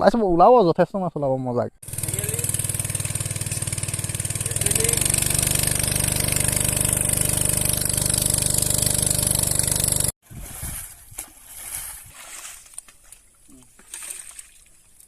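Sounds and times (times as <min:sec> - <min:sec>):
small pump engine running: 0:01.8 - 0:10.2.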